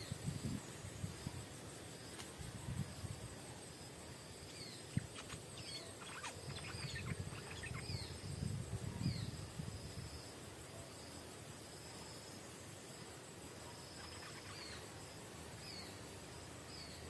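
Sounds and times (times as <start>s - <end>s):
insect drone: 0.0s - 17.0s
bulbul whistling calls: 4.5s - 8.2s, 13.8s - 14.9s.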